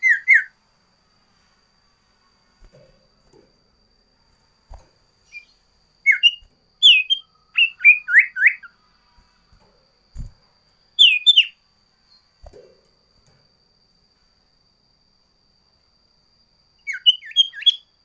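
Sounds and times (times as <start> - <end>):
songbird whistled chirps: 0.0 - 0.6, 4.3 - 9.4, 10.9 - 12.6, 16.8 - 18.0.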